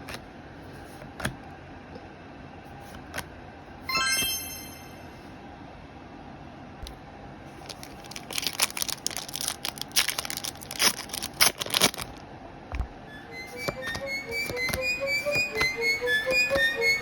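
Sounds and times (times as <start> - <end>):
music: 3.9 - 5.0, 13.0 - 17.0
plastic and foil wrap ripping: 7.6 - 12.2.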